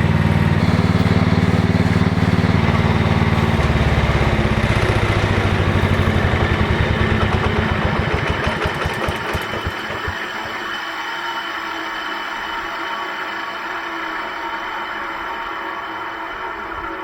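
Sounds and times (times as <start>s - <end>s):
tractor engine shutting off: 0.0s - 11.2s.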